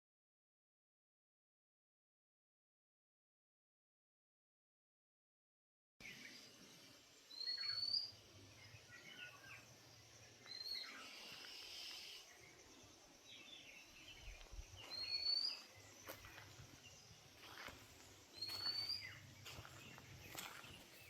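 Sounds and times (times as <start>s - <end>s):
bird chirps: 6.0s - 21.0s
faint outdoor hiss: 6.0s - 21.0s.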